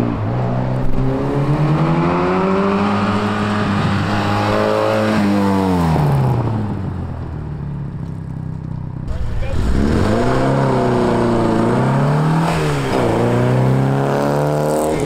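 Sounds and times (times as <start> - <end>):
car engine accelerating: 7.9 - 15.0.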